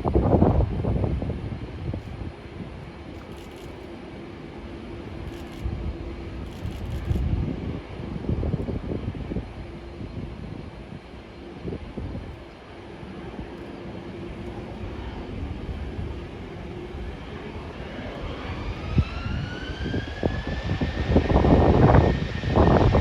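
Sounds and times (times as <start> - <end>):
jet engine low roar: 0.0 - 23.0
jet engine whine: 0.0 - 23.0.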